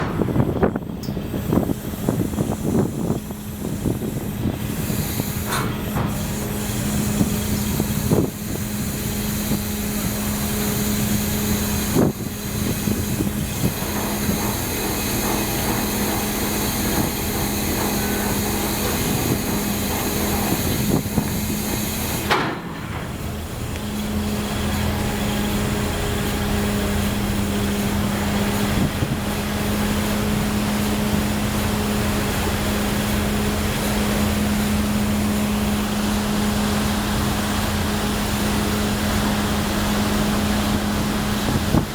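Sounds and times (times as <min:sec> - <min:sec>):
ship engines humming: 0:00.0 - 0:41.9.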